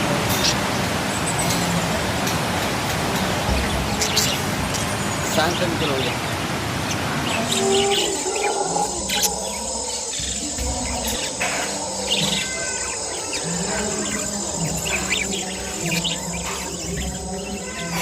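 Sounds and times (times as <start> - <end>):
parrots chirping: 3.4 - 18.0
high-pitched insect trill: 8.0 - 18.0.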